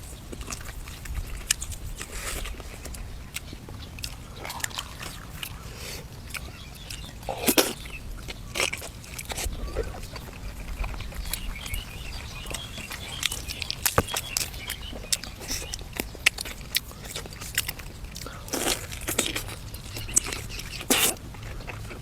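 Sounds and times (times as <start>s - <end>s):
person chewing food: 0.0s - 22.0s
food crunches: 0.1s - 22.0s
wet mouth smacking: 0.5s - 7.9s.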